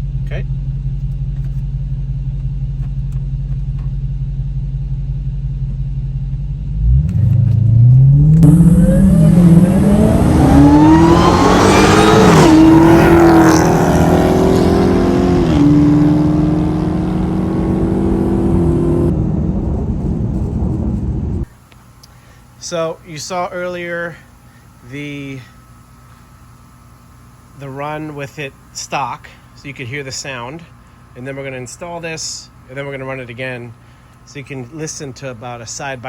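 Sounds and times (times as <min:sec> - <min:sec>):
car engine accelerating: 0:00.0 - 0:21.5.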